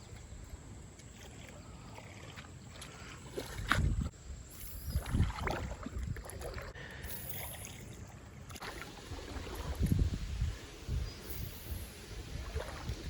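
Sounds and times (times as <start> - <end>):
creek water splashing around legs: 0.0 - 10.2, 11.7 - 13.0.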